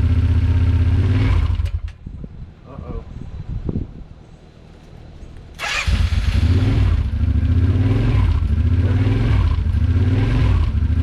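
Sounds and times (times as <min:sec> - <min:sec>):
atv engine starting and running: 0:00.0 - 0:02.0, 0:05.5 - 0:11.0.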